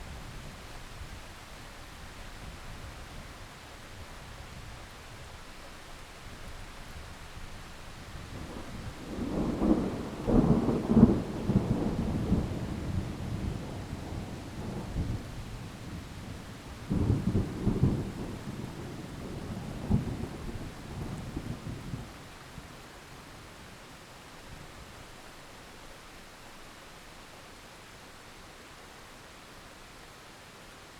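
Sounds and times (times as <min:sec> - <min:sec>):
steady rain: 0:00.0 - 0:30.9
rolling thunder: 0:08.4 - 0:22.1.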